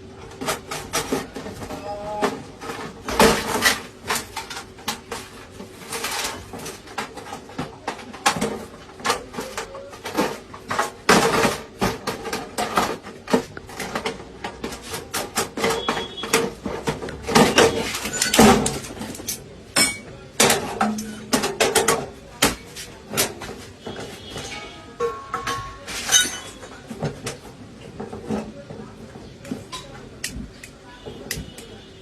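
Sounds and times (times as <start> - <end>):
hands clicking and knocking on object: 29.2 - 31.8.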